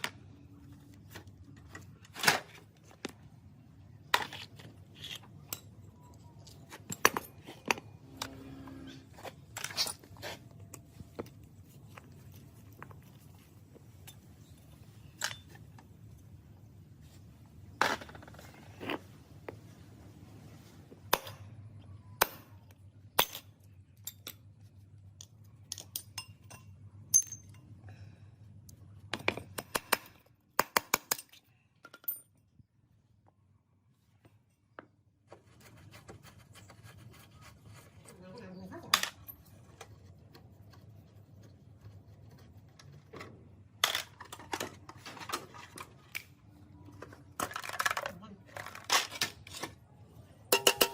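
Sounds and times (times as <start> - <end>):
low steady hum: 0.0 - 30.6
metal parts clicking and clinking: 4.1 - 8.3, 9.1 - 11.3, 14.0 - 16.2, 23.2 - 27.7, 31.1 - 32.4, 42.8 - 49.8.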